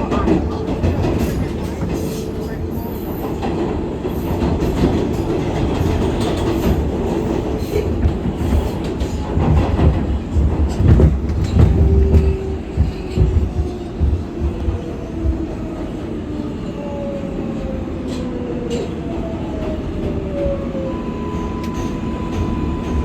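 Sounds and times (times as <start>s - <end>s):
clacking thumps of train: 0.0s - 16.1s
train wheels rumbling on rail: 0.0s - 23.0s.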